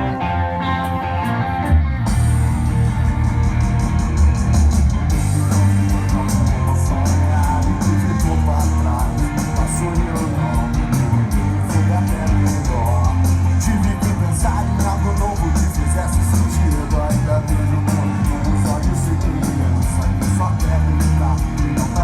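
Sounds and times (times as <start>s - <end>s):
rock band playing live: 0.0s - 22.0s
person singing: 5.1s - 22.0s.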